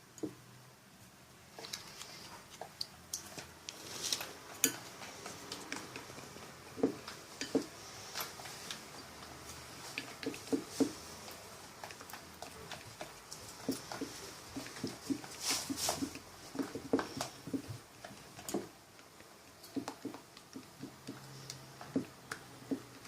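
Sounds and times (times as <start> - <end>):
utensil clinking and scraping in bowl: 3.2 - 18.6.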